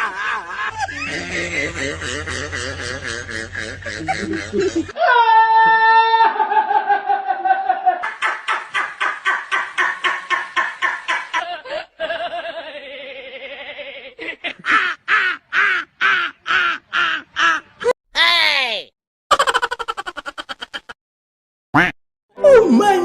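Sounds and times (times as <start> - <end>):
laughter: 0.0 - 5.0, 6.1 - 17.7, 19.3 - 21.0.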